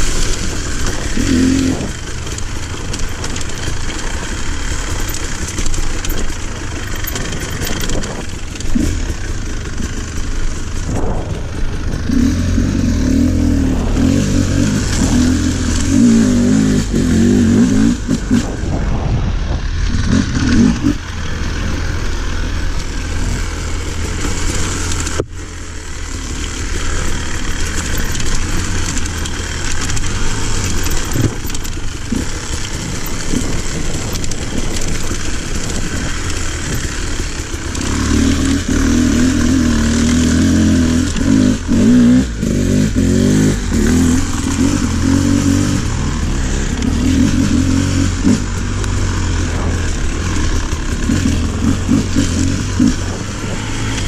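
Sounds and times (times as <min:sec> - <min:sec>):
off-road motorcycle engine revving: 0:00.0 - 0:54.0.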